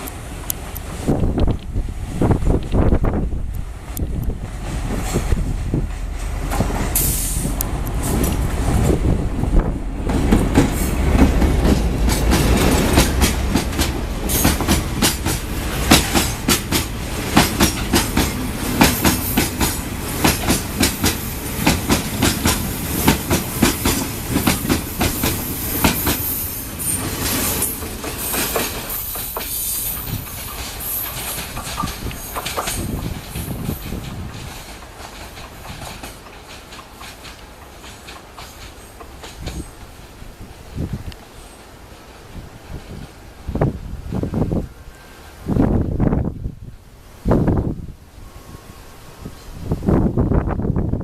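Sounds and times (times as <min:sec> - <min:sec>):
heavy low locomotive rumble: 0:00.0 - 0:18.8.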